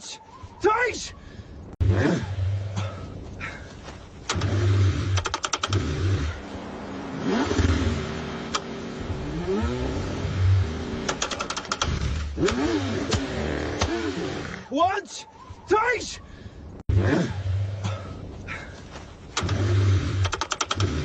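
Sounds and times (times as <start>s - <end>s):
car engine cranking: 4.2s - 6.5s, 7.1s - 14.6s, 19.3s - 21.0s
rapid clicking: 4.3s - 5.9s, 11.0s - 13.2s, 19.4s - 21.0s.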